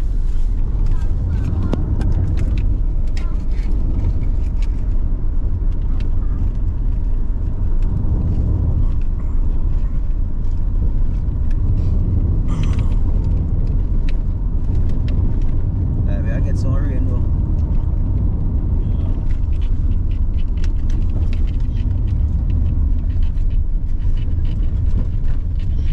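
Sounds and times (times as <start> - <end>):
car road and engine rumble: 0.0 - 25.9
light clicks and rattles: 0.6 - 25.9.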